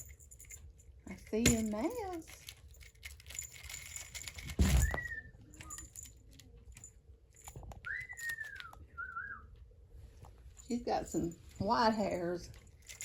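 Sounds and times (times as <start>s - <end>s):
bird whistled call: 7.9s - 9.4s.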